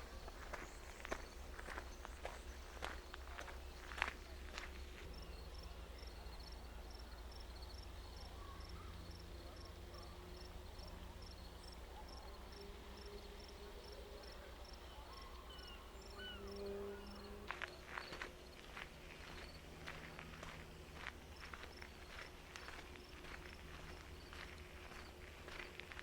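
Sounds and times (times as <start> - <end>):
footsteps: 0.0 - 5.1, 17.5 - 26.0
cricket chirping: 0.0 - 25.7
faint bird calls: 7.7 - 11.2, 13.9 - 18.3.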